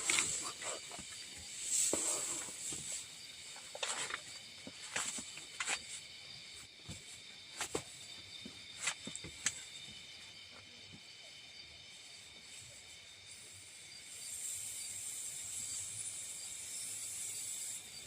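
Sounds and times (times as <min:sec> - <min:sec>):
high-pitched insect drone: 0:00.0 - 0:18.0
scattered clicks and knocks: 0:07.6 - 0:09.7.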